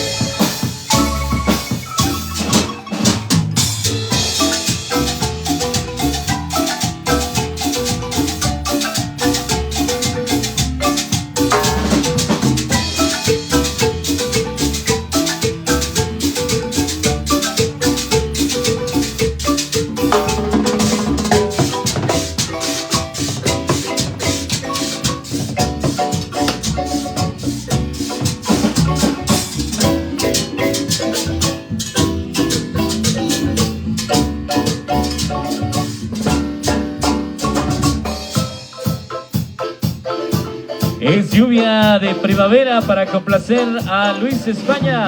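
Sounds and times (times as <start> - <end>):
drum beat: 0.0 - 45.0
maracas shaking: 0.0 - 45.0
marimba ensemble playing: 0.0 - 45.0.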